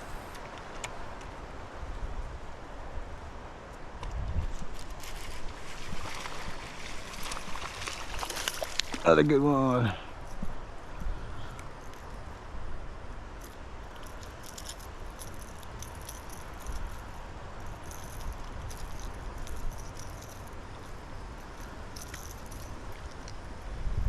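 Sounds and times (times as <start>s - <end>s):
steady outdoor hiss: 0.0s - 24.0s
fishing tackle clicking and jingling: 13.4s - 23.6s.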